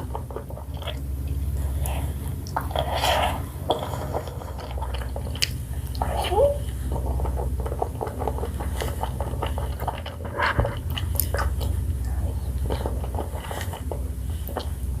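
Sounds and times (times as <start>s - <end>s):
chewing ice cream: 0.0s - 15.0s
wet mouth clicks and smacks: 4.8s - 6.1s.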